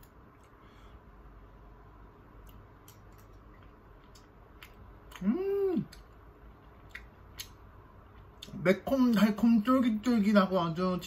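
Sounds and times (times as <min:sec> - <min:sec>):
person chewing food: 0:02.4 - 0:09.2
person humming mmm: 0:05.1 - 0:06.0.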